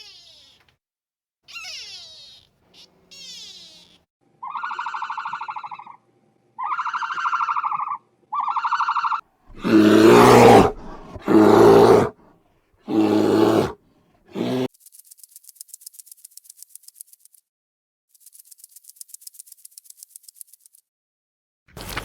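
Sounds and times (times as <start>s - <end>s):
buzzy pulsed animal calls: 1.5s - 6.0s
roar-like animal calls: 6.6s - 12.2s, 12.9s - 14.7s.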